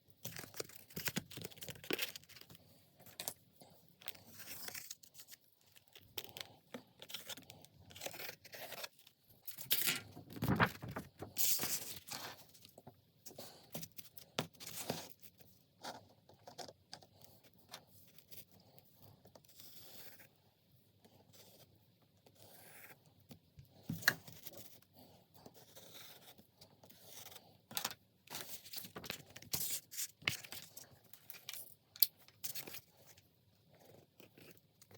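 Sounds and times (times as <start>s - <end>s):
paper tearing and crinkling: 10.3s - 12.0s.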